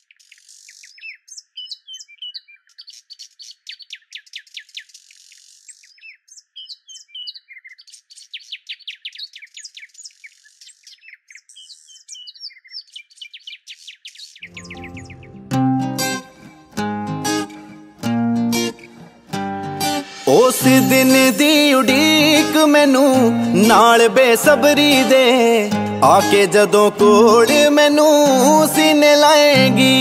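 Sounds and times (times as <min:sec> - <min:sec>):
small birds chirping: 0:00.0 - 0:16.5.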